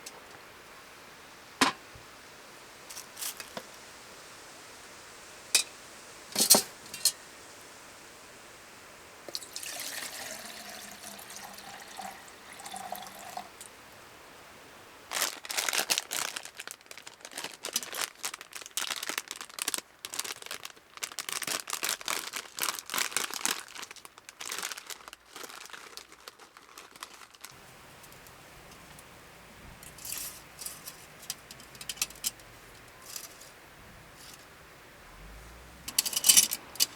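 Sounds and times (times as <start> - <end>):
crinkling and rustling: 2.9 - 3.8, 15.1 - 34.5, 35.3 - 36.9
liquid pouring: 9.3 - 13.6.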